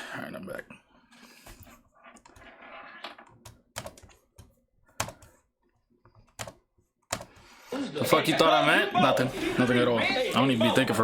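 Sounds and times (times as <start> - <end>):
computer keyboard typing: 3.4 - 5.4, 6.2 - 7.4.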